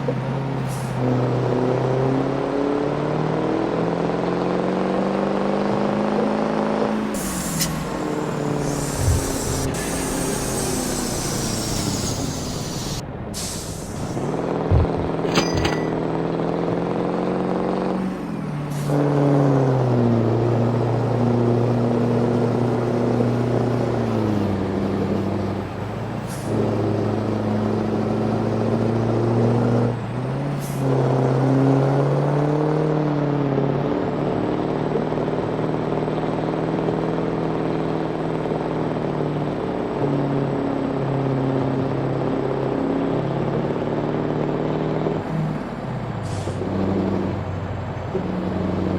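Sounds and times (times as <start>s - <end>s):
deep diesel truck engine: 0.0s - 48.9s
air hisses: 7.2s - 14.2s.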